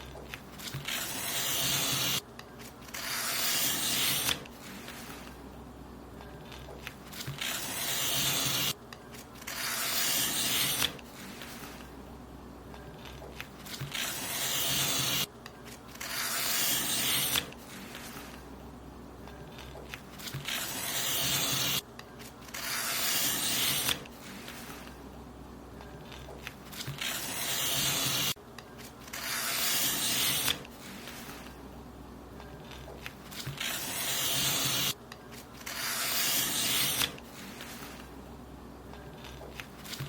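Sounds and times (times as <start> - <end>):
paper being cut: 0.3 - 5.3, 6.5 - 11.8, 13.0 - 18.4, 19.5 - 21.8, 22.4 - 24.9, 26.1 - 28.4, 29.0 - 31.5, 32.7 - 38.0.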